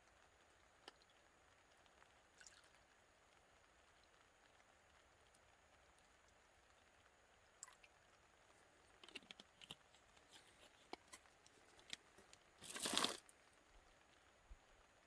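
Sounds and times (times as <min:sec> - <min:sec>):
small clicks and crinkling: 0:07.6 - 0:13.8
tearing rustle: 0:12.6 - 0:13.2.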